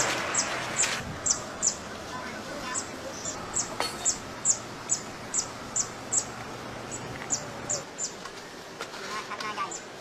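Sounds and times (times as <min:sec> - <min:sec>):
bird chirping: 0:00.3 - 0:01.8, 0:02.6 - 0:08.2.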